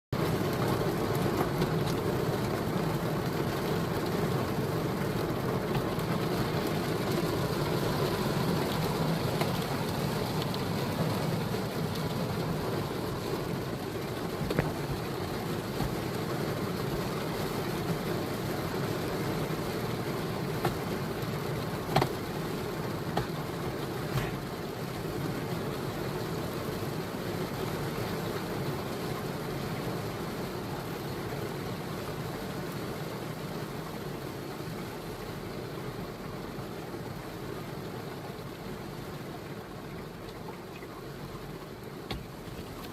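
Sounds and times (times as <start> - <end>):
raindrop taps: 0.2 - 24.6, 42.0 - 42.9
steady rain hiss: 0.2 - 42.9.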